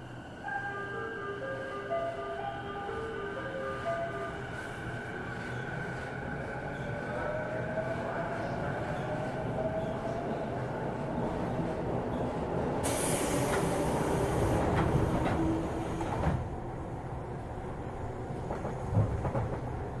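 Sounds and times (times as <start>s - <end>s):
train wheels rumbling on rail: 7.9s - 20.0s
hiss: 12.8s - 14.6s
rail-joint clicks: 12.9s - 16.8s, 17.4s - 20.0s.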